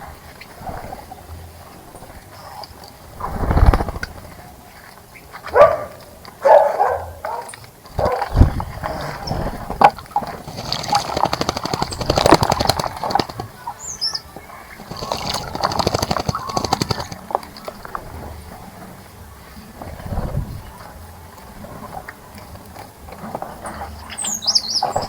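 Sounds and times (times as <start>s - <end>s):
water splashing: 0.0s - 25.0s
wings flapping: 1.9s - 5.7s, 7.3s - 18.8s
high bird chirp: 13.6s - 17.2s, 24.0s - 25.0s.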